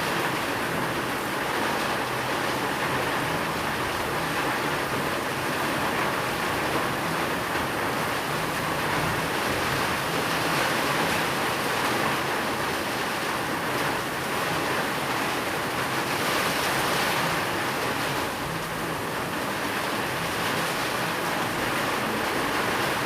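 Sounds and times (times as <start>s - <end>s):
heavy rain: 0.0s - 23.0s.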